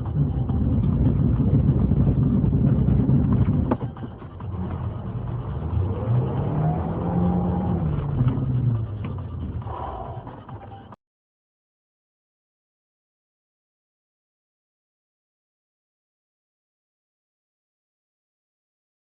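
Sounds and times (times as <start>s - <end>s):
car engine speeding up: 0.0s - 10.5s
road rumble: 0.0s - 11.0s.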